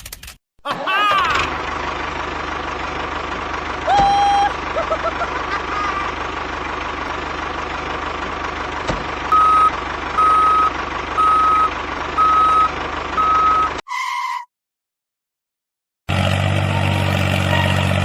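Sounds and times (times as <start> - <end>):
reversing alarm beeps: 9.3 - 14.4.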